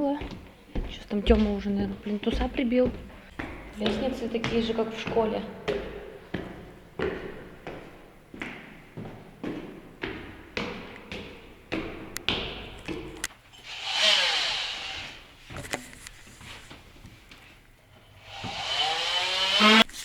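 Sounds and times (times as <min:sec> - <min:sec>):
footsteps going down stairs: 0:00.0 - 0:20.0
drawn-out sliding squeak: 0:13.6 - 0:15.9.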